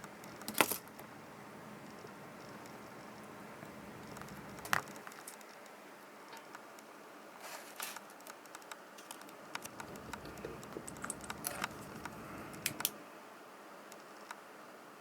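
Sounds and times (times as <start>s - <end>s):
small parts and tools clicking: 0.0s - 1.1s, 1.8s - 6.9s, 7.8s - 13.0s
light rustling: 9.0s - 12.9s.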